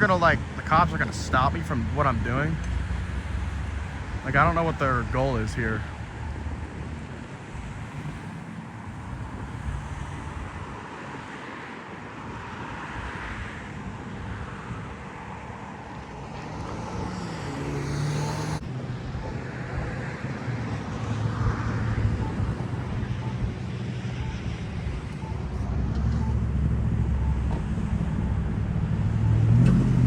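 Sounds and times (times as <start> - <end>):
cars passing: 0.0 - 30.0
vehicle engine: 0.0 - 30.0.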